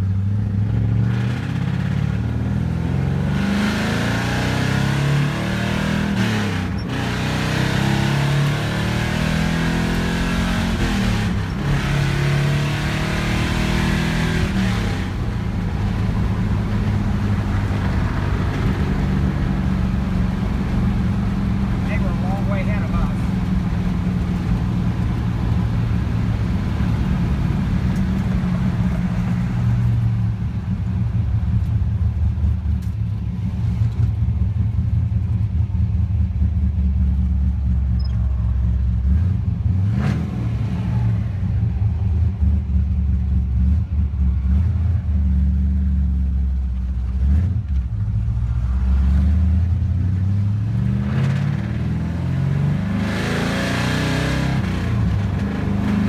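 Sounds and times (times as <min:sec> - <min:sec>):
truck engine running: 0:06.1 - 0:39.8.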